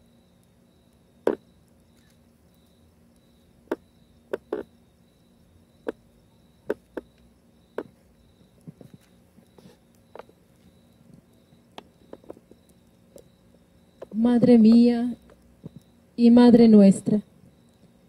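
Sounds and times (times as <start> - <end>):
cricket chirping: 0.0 - 18.0
sharp pops or knocks: 3.7 - 4.7, 6.7 - 7.2, 7.8 - 8.0.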